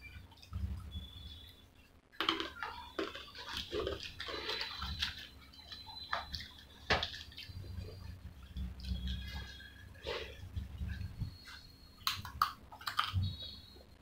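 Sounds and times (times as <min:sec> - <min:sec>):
chewing french fries: 0:02.2 - 0:11.4, 0:12.0 - 0:13.6.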